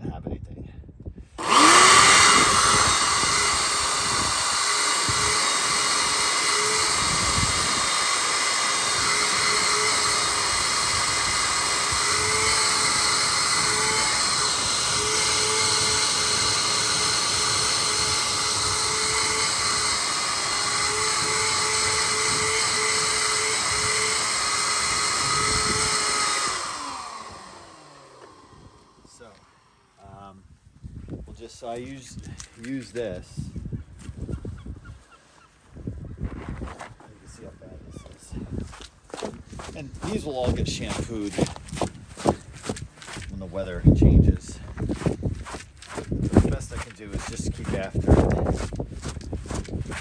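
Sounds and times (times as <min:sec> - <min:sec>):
shop vacuum running: 0:01.4 - 0:30.0, 0:38.7 - 0:43.3, 0:44.4 - 0:50.0.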